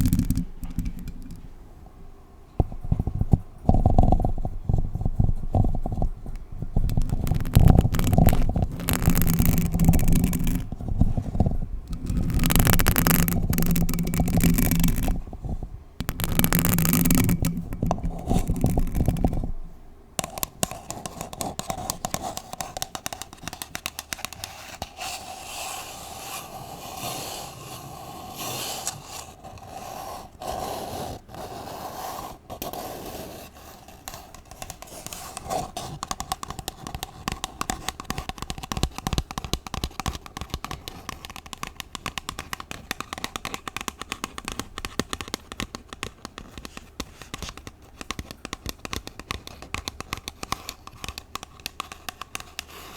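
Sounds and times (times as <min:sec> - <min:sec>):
nails scratching paper cup: 0:00.0 - 0:01.5, 0:02.6 - 0:52.9
nails scraping microphone: 0:00.0 - 0:01.6, 0:02.6 - 0:22.8.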